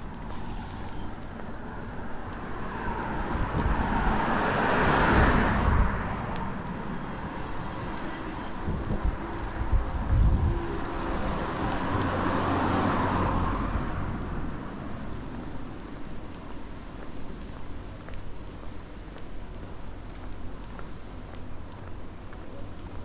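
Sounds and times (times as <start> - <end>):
car passing by: 0.0 - 15.8
low wind rumble on microphone: 0.0 - 23.0.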